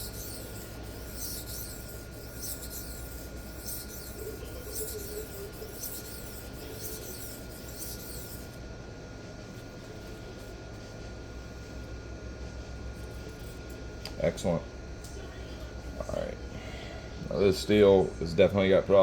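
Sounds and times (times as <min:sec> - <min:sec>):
knife scraping on sharpening plate: 0:00.0 - 0:08.6.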